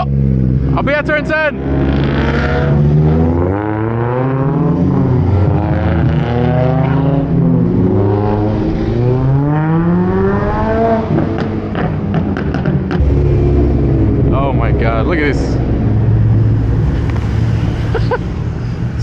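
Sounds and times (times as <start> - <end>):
car engine accelerating through gears: 1.6 - 19.0.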